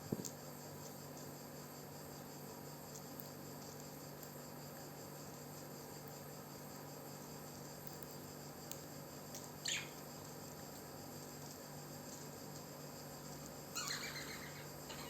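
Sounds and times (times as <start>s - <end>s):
crickets chirring: 0.0s - 15.0s
parrot chirp: 9.6s - 10.0s, 13.7s - 15.0s.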